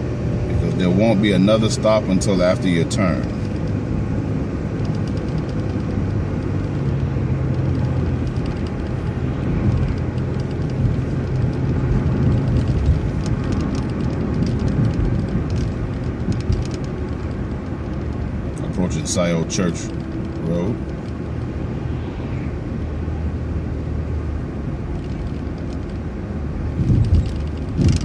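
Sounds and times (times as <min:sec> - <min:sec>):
bus engine drone: 0:00.0 - 0:28.0
road noise: 0:00.0 - 0:28.0
light clicks and rattles: 0:04.7 - 0:21.6, 0:24.8 - 0:28.0.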